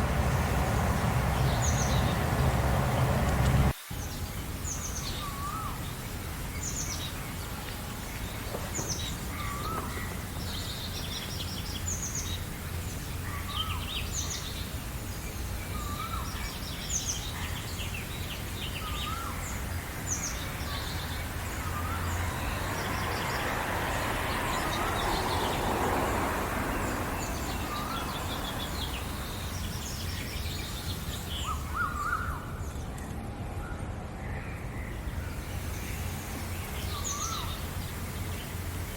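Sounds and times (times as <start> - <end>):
soft rushing noise: 0.0 - 3.8
steady low rumble: 0.0 - 3.8
birds chirping and trilling: 0.0 - 7.6, 8.2 - 38.9.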